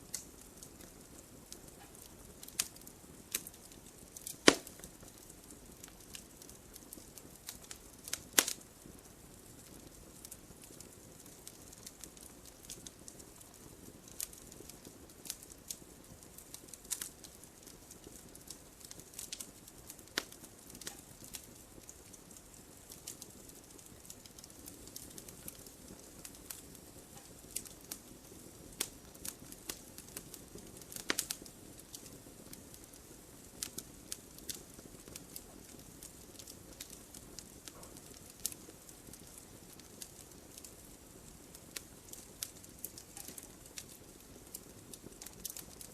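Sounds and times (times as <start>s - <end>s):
campfire crackling: 0.0s - 45.9s.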